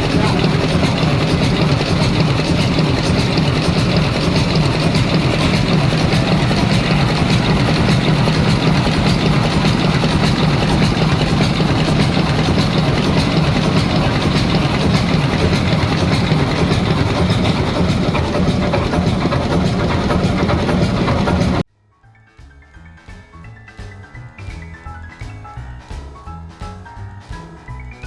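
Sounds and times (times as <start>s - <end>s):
large engine clattering: 0.0s - 21.6s.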